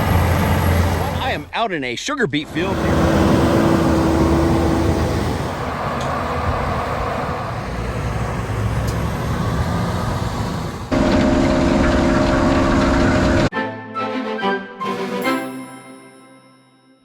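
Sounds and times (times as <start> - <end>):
diesel farm machinery droning: 0.0 - 1.5, 2.4 - 13.5.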